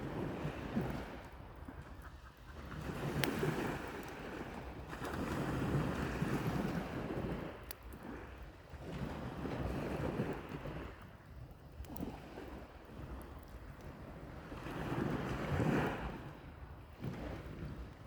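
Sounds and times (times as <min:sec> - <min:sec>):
sea waves washing ashore: 0:00.0 - 0:11.1, 0:12.0 - 0:18.0
wind on microphone: 0:00.0 - 0:18.0
campfire popping: 0:01.5 - 0:04.2.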